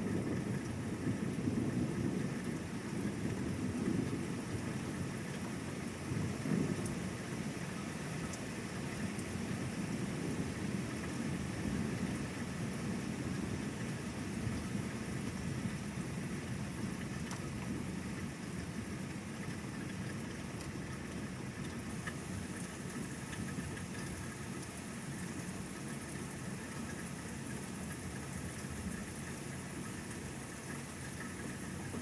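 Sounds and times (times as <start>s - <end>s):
rolling rumble of thunder: 0.0s - 5.4s, 6.1s - 7.2s
rain falling: 0.0s - 32.0s.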